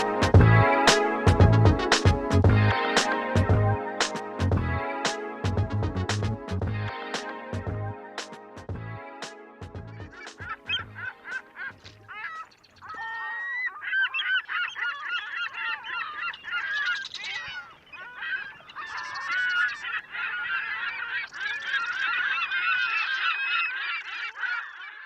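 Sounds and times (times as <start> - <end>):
flock of birds calling: 10.0 - 25.0.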